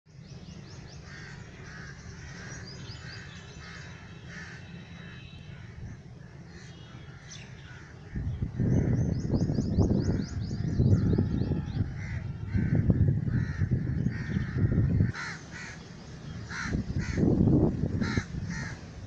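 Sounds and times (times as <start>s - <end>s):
small birds chirping: 0.1s - 12.2s
crows cawing: 1.0s - 9.1s, 10.6s - 15.8s, 16.4s - 17.4s, 18.0s - 18.9s
wind buffeting microphone: 7.1s - 19.0s.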